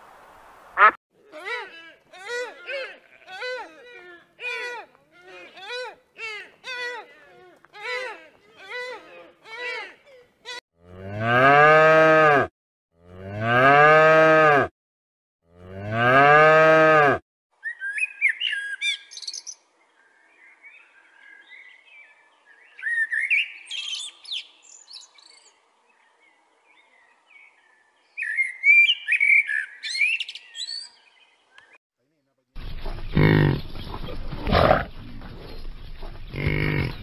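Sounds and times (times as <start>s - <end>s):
cattle mooing: 10.8s - 14.7s, 15.5s - 17.2s, 36.3s - 37.0s
blackbird singing: 17.6s - 31.8s, 32.6s - 37.0s.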